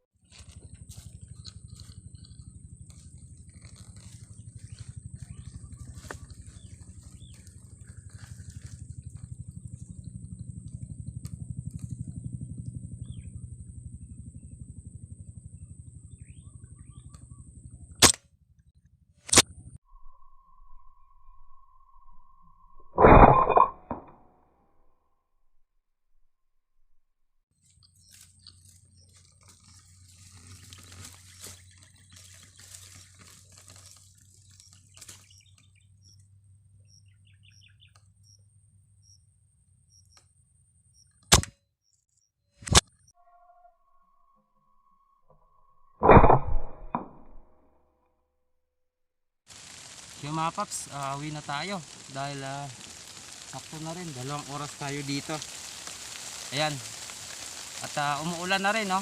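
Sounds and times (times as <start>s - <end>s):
steady high whine: 0.0s - 18.2s, 19.2s - 23.5s, 49.5s - 59.0s
crackling patter: 0.2s - 18.1s, 27.6s - 38.4s, 49.5s - 59.0s
bird call: 3.7s - 8.8s, 36.9s - 38.4s.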